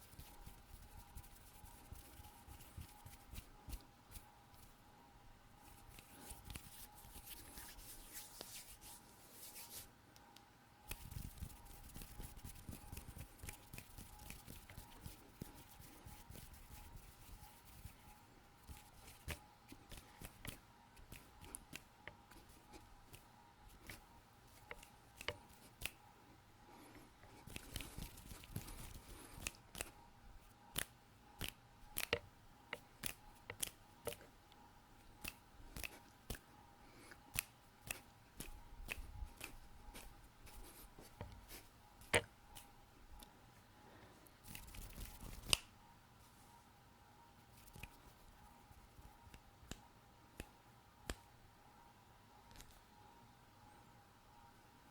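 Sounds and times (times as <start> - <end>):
hands rubbing: 5.6 - 9.9, 10.9 - 26.0, 26.9 - 30.0
finger clicks and taps: 10.2 - 18.1, 18.7 - 26.0, 27.4 - 30.0, 30.7 - 34.3, 35.2 - 36.5, 37.3 - 41.4.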